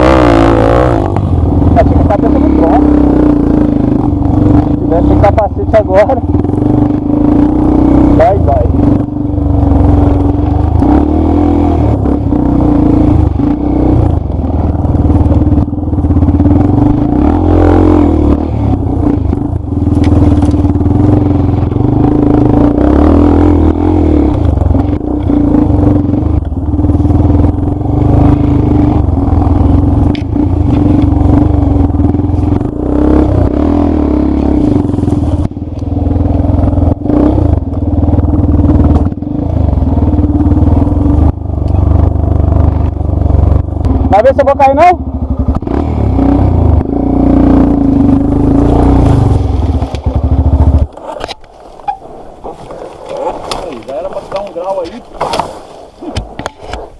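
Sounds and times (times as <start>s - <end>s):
dirt bike engine running: 0.0s - 56.9s
bike knocks and rattles: 49.0s - 56.9s.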